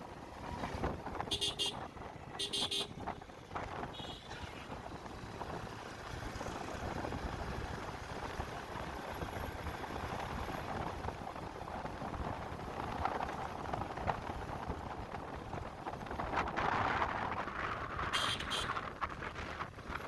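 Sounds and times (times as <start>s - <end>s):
horn beep: 18.2s - 18.8s.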